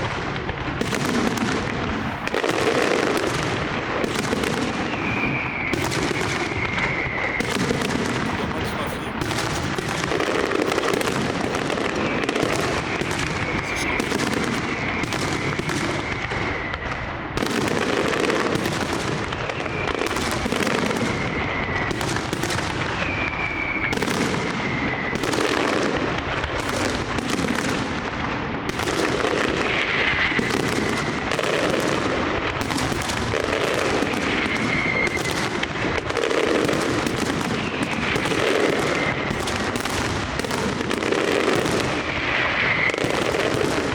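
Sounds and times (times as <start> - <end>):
falling whistles of fireworks: 0.0 - 43.9
fireworks bangs: 0.0 - 43.9.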